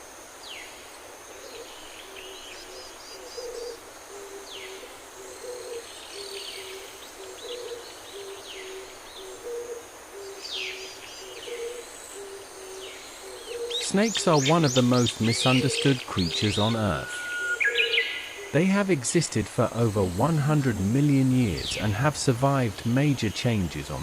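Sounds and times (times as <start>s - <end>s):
low two-note hooting call: 15.4s - 17.7s
bird chirps and falling whistles: 17.0s - 18.2s.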